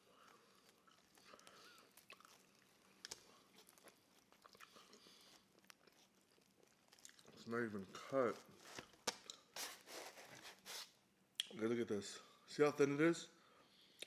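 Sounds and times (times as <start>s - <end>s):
chewing pizza: 0.0s - 9.5s.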